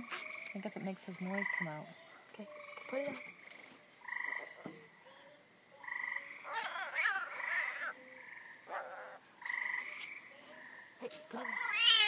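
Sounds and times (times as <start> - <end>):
frog whining call: 5.8 - 10.3.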